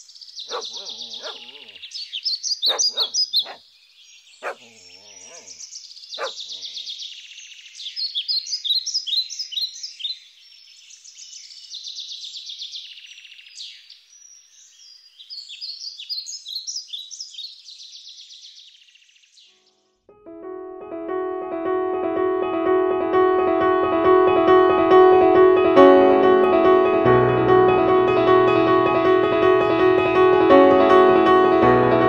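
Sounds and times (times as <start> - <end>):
small birds chirping: 0.0 - 19.8
dog barking: 0.5 - 1.8, 2.6 - 3.6, 4.4 - 5.6, 6.2 - 6.8.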